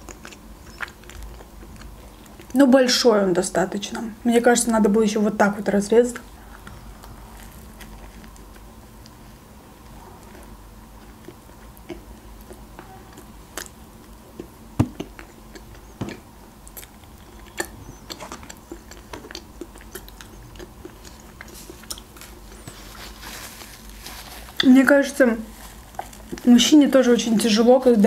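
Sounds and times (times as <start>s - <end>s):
person chewing crunchy sandwich: 0.0s - 2.6s, 6.2s - 24.6s, 25.5s - 26.5s
mouth clicks: 14.4s - 22.1s.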